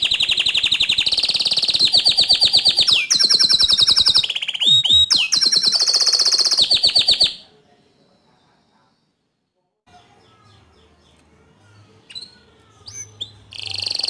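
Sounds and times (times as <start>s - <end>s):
canary singing rapid trills: 0.0s - 7.5s, 11.8s - 14.0s.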